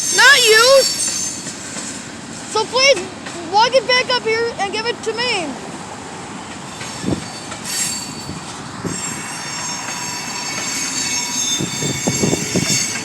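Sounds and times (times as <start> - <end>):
train wheels squealing on rails: 0.0 - 3.1, 6.3 - 13.0
train cars rumbling: 0.0 - 13.0.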